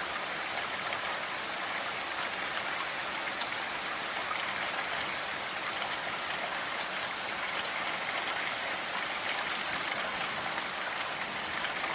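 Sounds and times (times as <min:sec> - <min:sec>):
raindrops pattering: 0:00.0 - 0:11.9
heavy rain hissing: 0:05.1 - 0:11.9.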